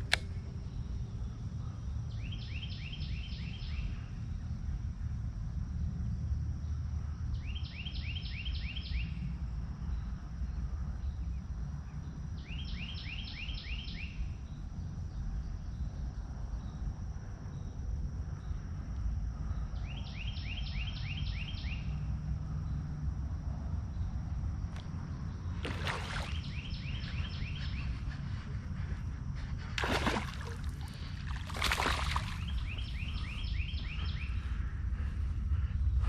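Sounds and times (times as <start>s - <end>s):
low wind rumble on microphone: 0.0s - 36.0s
bird singing rising notes: 25.1s - 29.0s, 29.6s - 34.5s.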